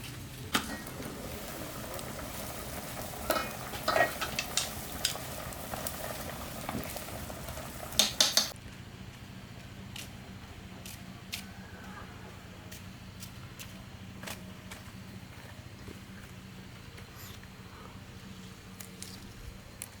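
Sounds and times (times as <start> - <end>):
food sizzling in a pan: 0.6 - 8.6
utensil scraping and clinking pan: 0.7 - 7.2.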